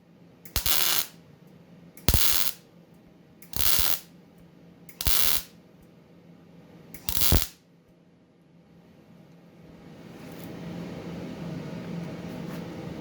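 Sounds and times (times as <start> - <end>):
welder arc crackling: 0.5 - 1.2, 2.0 - 2.6, 3.5 - 4.1, 4.9 - 5.5, 7.0 - 7.6.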